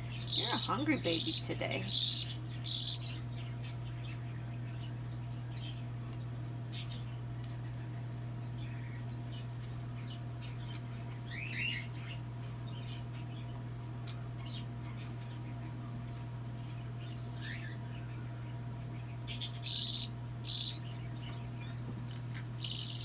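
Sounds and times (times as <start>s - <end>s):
steady low hum: 0.0s - 23.0s
baby bird begging chirps: 0.2s - 3.2s, 19.4s - 21.1s, 22.6s - 23.0s.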